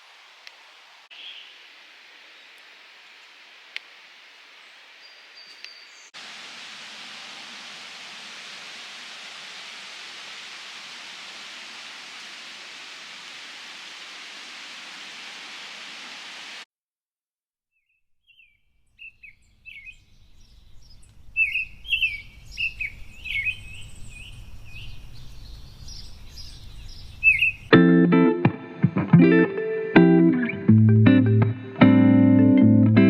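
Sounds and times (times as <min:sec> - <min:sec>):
small birds chirping: 0:01.1 - 0:01.6, 0:04.6 - 0:06.2, 0:17.8 - 0:27.7.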